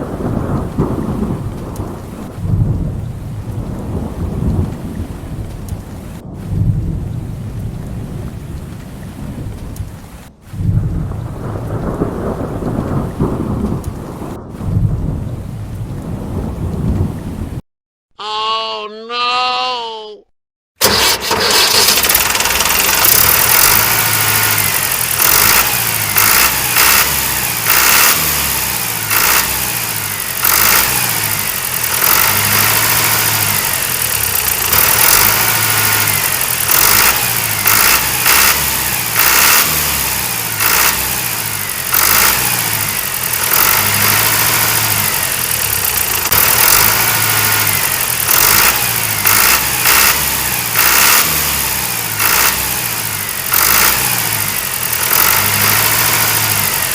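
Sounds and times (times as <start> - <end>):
tractor engine with uneven revs: 20.8 - 56.9.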